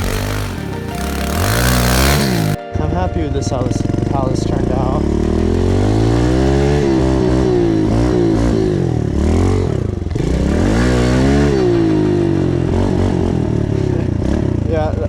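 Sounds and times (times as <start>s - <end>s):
motorbike engine revving: 0.0s - 2.6s, 3.7s - 15.0s.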